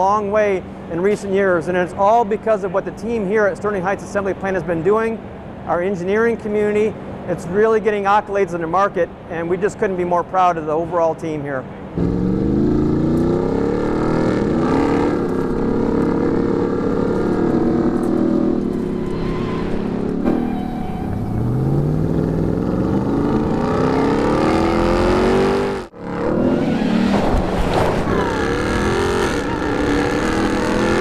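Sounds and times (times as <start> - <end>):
truck engine revving loudly: 12.0 - 19.0, 21.2 - 31.0.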